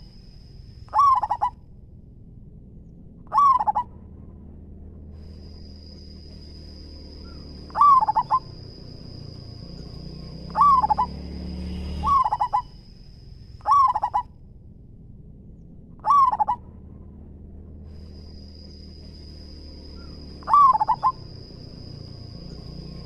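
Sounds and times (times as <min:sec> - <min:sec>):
dove cooing: 0:00.9 - 0:01.6, 0:03.3 - 0:03.9, 0:07.3 - 0:08.7, 0:10.4 - 0:11.2, 0:12.0 - 0:12.7, 0:13.6 - 0:14.3, 0:16.0 - 0:16.6, 0:20.0 - 0:21.4.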